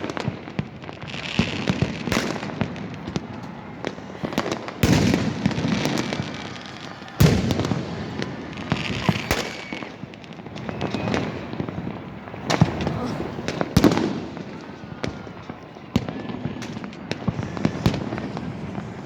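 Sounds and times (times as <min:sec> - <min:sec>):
fireworks bangs: 0:00.0 - 0:19.0
fireworks crackling and popping: 0:00.0 - 0:19.0
faint whistling: 0:03.3 - 0:13.0.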